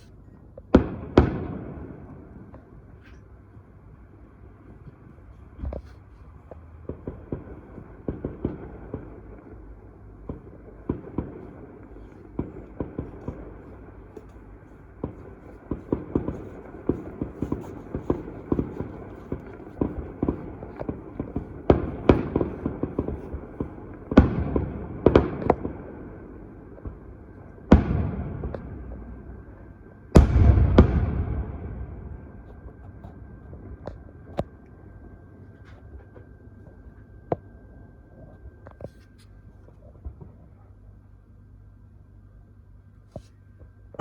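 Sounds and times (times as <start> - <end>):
fireworks bangs and crackles: 0.7 - 2.6, 6.7 - 34.5.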